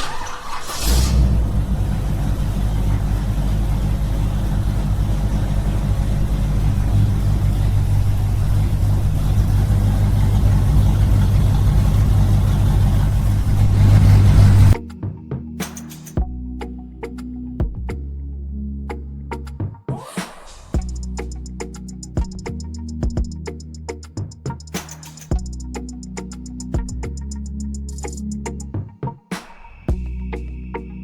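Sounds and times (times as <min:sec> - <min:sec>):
small engine droning: 0:00.0 - 0:14.8.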